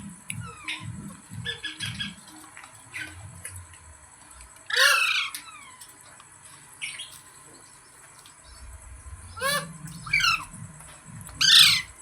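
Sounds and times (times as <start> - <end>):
parrot chirps: 4.7 - 5.8, 9.3 - 10.6, 11.4 - 12.0
parrot squawk: 4.7 - 5.8, 9.3 - 10.5, 11.4 - 11.9.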